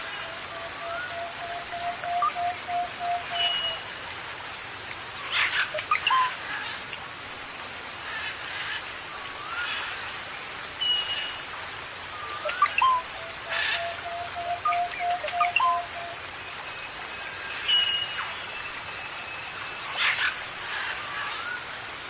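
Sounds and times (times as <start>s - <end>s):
steady hiss: 0.0s - 22.0s
birds chirping and whistling: 12.4s - 16.1s.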